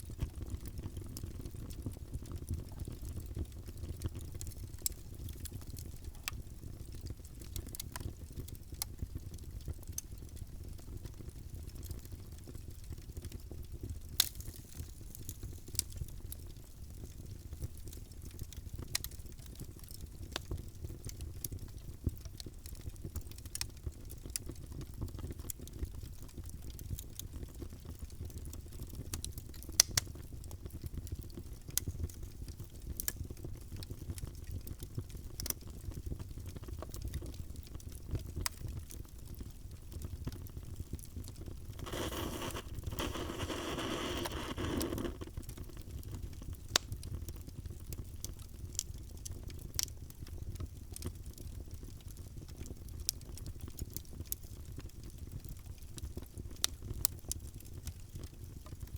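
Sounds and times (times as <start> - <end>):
wood fire crackling: 0.0 - 58.9
hiss from fire: 41.7 - 45.4.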